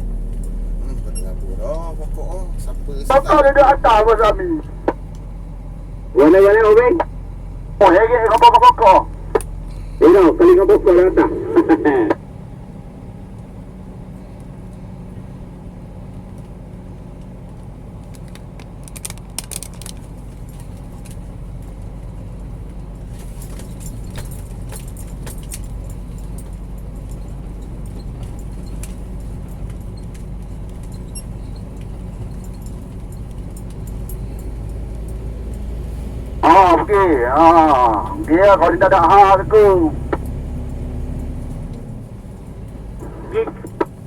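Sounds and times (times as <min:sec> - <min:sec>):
truck diesel engine running: 0:00.0 - 0:44.0
light jingling rattles: 0:22.8 - 0:35.8.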